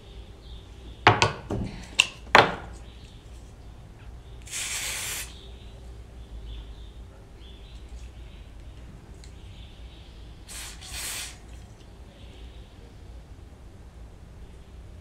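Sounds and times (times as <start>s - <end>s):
aerosol spray hissing: 4.4s - 5.4s, 10.5s - 11.5s.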